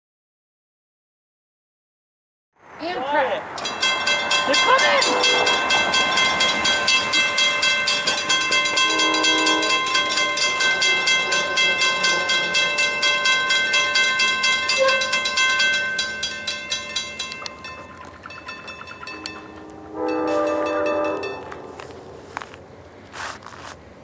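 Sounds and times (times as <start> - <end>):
railroad bell ringing: 3.6 - 22.5
train horn note: 4.7 - 6.6, 8.6 - 10.2, 14.7 - 15.4, 19.1 - 22.0.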